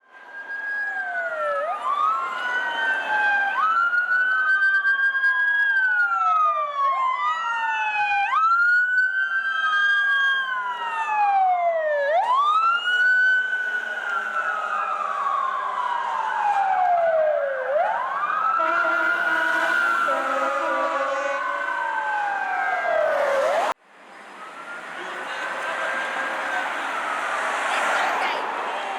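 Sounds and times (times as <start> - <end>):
wailing emergency sirens: 0.0 - 28.9
steady blaring horn tone: 18.4 - 23.8.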